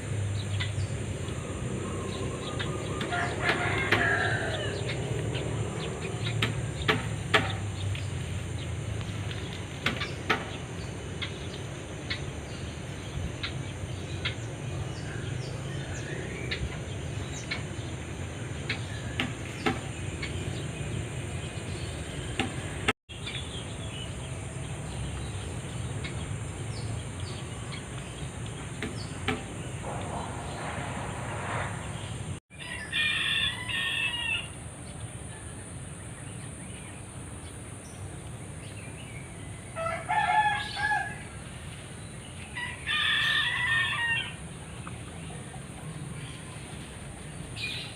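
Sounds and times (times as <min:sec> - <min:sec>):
fowl-like bird calls: 0:02.4 - 0:05.1.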